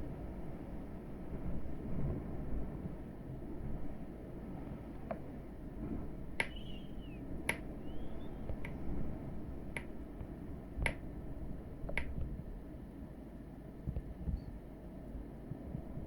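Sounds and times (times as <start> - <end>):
low rumble of storm wind: 0.0 - 16.0
faint short chirps: 6.4 - 7.2
sharp clicks: 6.4 - 8.8.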